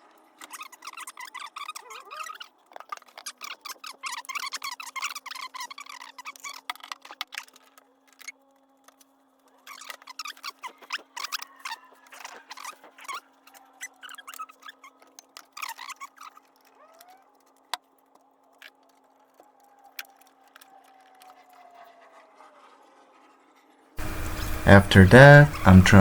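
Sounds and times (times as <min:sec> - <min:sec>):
short squeaks: 0:00.4 - 0:06.7, 0:09.7 - 0:17.3
steady low hum: 0:24.0 - 0:26.0.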